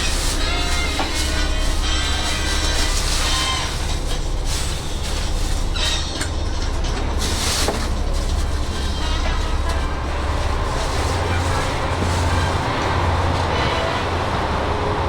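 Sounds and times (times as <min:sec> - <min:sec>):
diesel railcar engine idling: 0:00.0 - 0:15.0.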